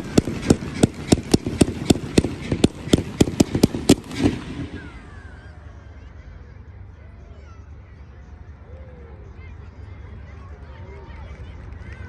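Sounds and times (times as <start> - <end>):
fireworks popping: 0.0 - 5.3.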